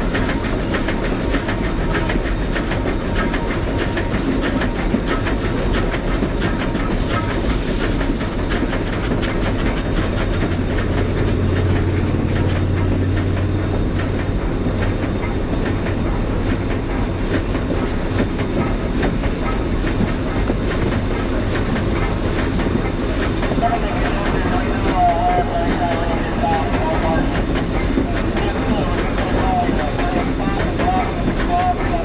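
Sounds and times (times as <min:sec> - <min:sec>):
train wheels rumbling on rail: 0:00.0 - 0:32.0
wheels clacking over rail joints: 0:08.0 - 0:32.0.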